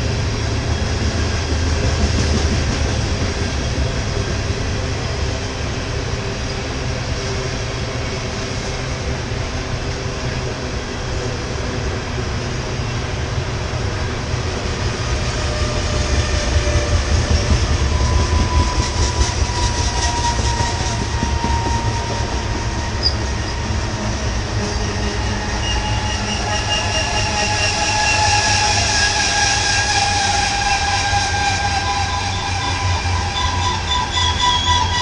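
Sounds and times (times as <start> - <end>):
train wheels rumbling on rail: 0.0 - 35.0
metallic wheel squeal: 15.4 - 23.8, 24.5 - 35.0.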